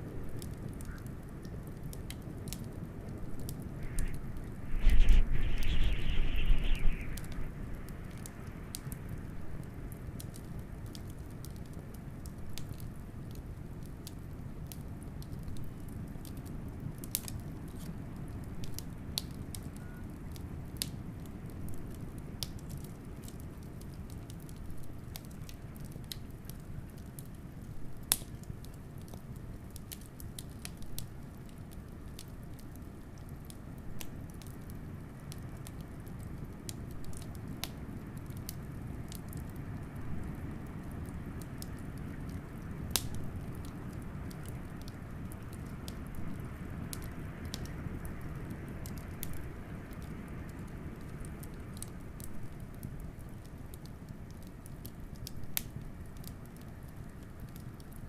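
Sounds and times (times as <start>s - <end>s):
low rush of wind: 0.0s - 12.0s
wood fire crackling and popping: 0.0s - 58.0s.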